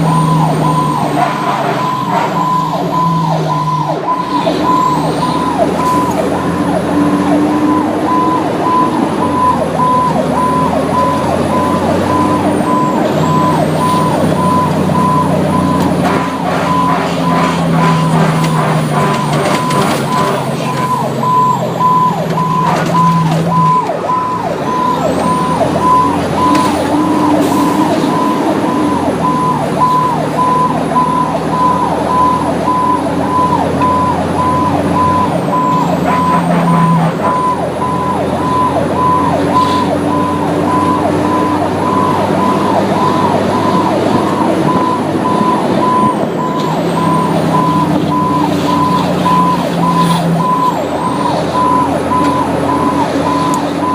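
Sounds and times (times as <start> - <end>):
fire engine running: 0.0 - 53.9
repeating electronic beep: 1.8 - 6.7.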